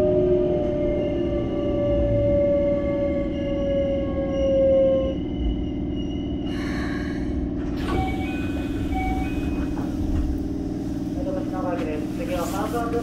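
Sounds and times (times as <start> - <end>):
train equipment hum: 0.0 - 13.0
train inverter whine: 0.0 - 13.0.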